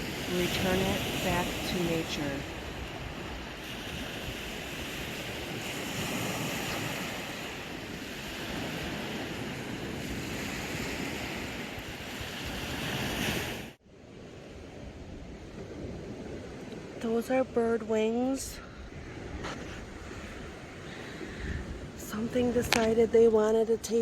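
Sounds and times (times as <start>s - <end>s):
waves washing on a beach: 0.0s - 24.0s
wind on microphone: 0.0s - 24.0s.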